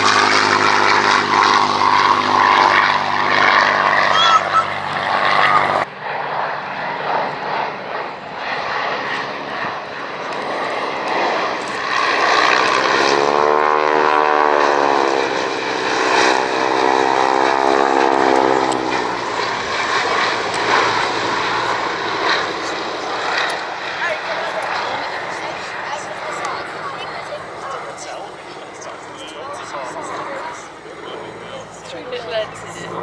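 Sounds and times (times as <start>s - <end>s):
propeller aircraft flying past: 0.0s - 33.0s
steady rushing noise: 8.9s - 33.0s.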